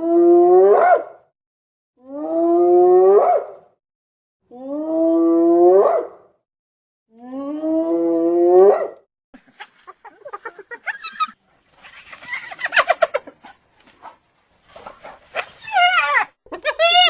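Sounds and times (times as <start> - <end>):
hyena short choppy calls: 16.5 - 17.0
hyena whoop calls: 16.5 - 17.0.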